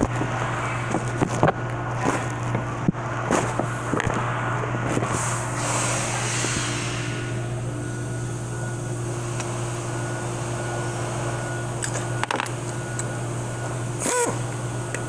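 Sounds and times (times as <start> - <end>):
small motor humming: 7.8 - 15.0.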